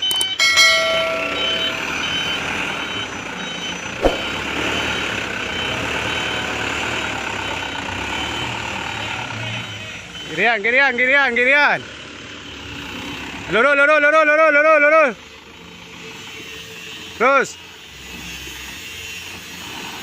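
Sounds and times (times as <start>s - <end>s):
brief tone: 0.0s - 5.1s
reversing alarm beeping: 0.0s - 11.2s, 12.3s - 13.6s
truck engine running: 0.0s - 16.9s
knock: 4.0s - 4.3s.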